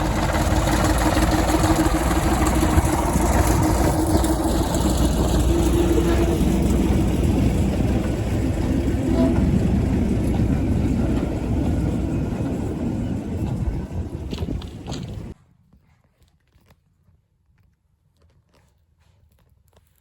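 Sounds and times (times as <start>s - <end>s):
diesel locomotive engine rumbling: 0.0s - 15.4s.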